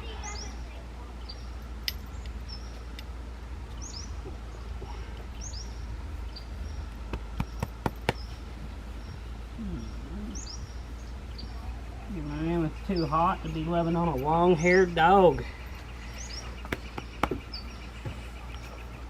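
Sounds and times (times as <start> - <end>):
bird chirping: 0.0 - 19.0.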